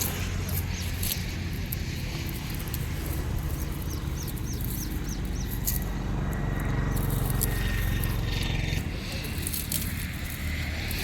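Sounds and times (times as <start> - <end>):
steady low rumble: 0.0 - 11.0
bird chirping: 2.6 - 9.2.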